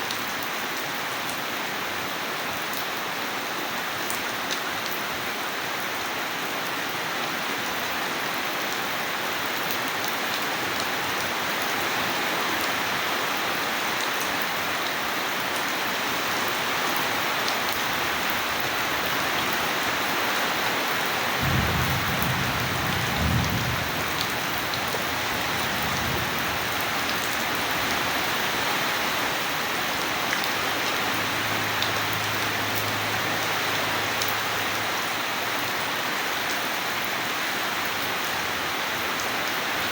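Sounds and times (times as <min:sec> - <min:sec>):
steady rain falling: 0:00.0 - 0:39.9
low roll of thunder: 0:21.4 - 0:27.0.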